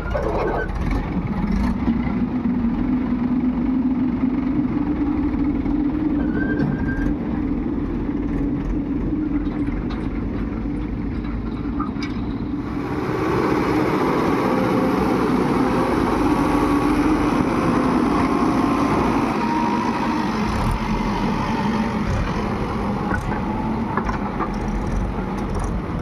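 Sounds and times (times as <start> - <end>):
diesel engines running: 0.0 - 26.0.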